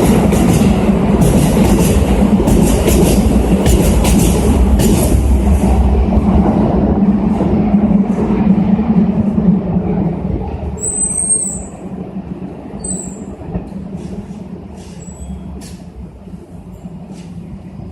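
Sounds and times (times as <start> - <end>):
electric train departing: 0.0 - 17.9.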